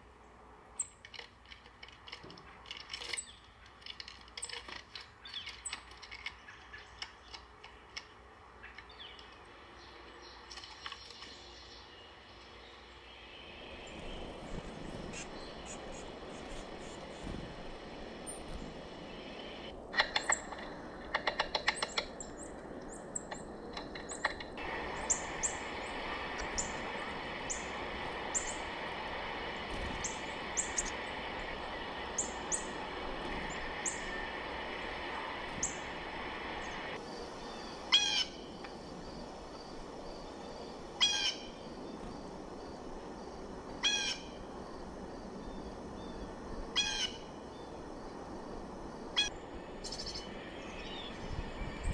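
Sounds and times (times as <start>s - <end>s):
birds chipping: 2.4s - 51.9s
loud harsh bird calls: 35.2s - 38.5s, 41.0s - 41.6s, 46.8s - 47.3s.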